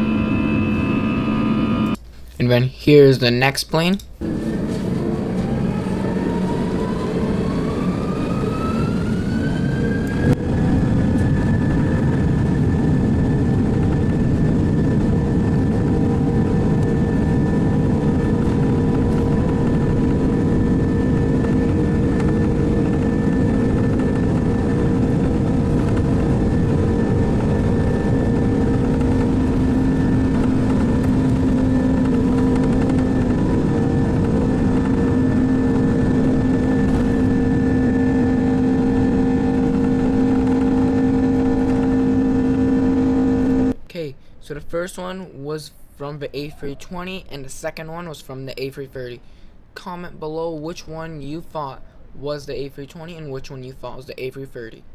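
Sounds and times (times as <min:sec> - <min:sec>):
jet engines spooling up: 0:00.0 - 0:02.0, 0:04.2 - 0:43.8.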